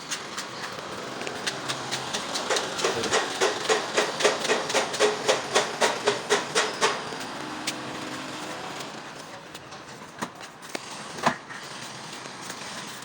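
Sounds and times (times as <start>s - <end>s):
rapid sharp knocking: 0.2s - 7.8s.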